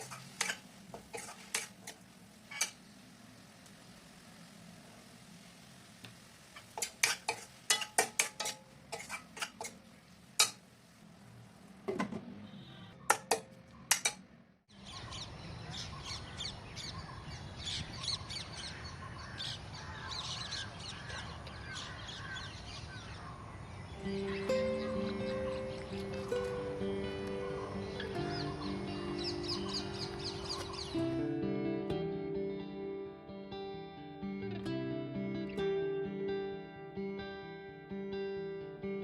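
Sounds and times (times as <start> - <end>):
dishes and utensils clinking: 0.0 - 2.8, 6.6 - 10.6, 13.1 - 14.2
steady background hiss: 0.0 - 11.9
birds chirping: 14.7 - 31.3
crows calling: 18.6 - 31.0.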